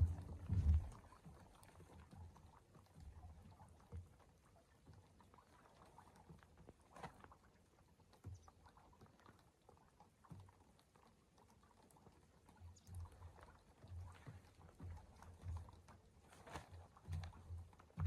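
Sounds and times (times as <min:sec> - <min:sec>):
soft low thumps: 0:00.0 - 0:01.0.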